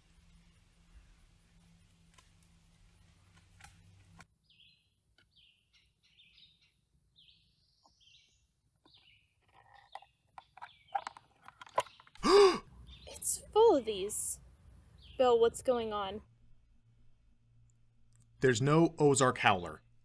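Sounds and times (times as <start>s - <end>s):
faint low hum: 0.0s - 4.8s
small birds chirping: 4.4s - 16.0s.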